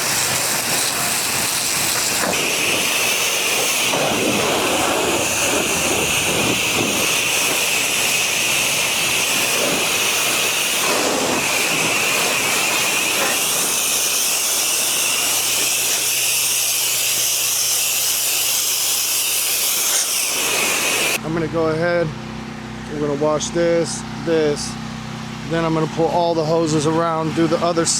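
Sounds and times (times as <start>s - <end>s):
pressure washer spraying: 0.0s - 21.2s.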